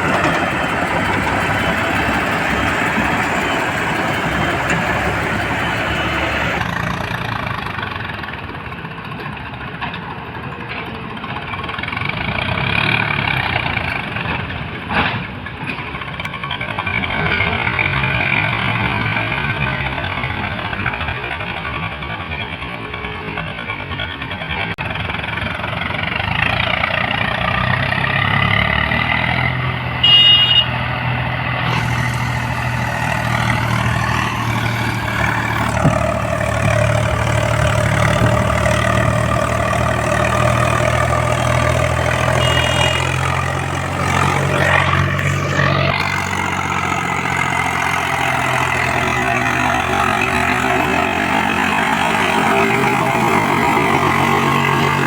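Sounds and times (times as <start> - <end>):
tractor diesel engine running: 0.0 - 55.0
loud high beep: 30.0 - 30.8, 42.4 - 43.3.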